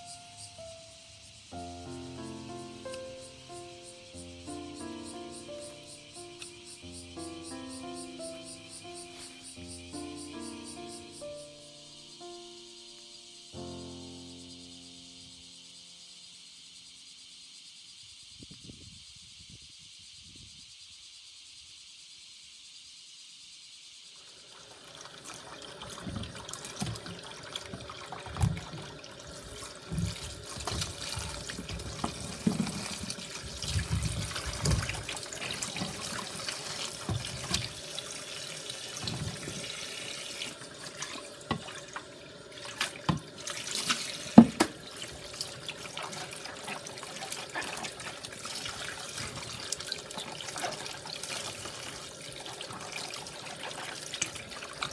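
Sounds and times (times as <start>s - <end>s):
tap water running into basin: 24.2s - 54.9s
vegetables knocking in water: 29.8s - 36.2s, 42.8s - 44.8s.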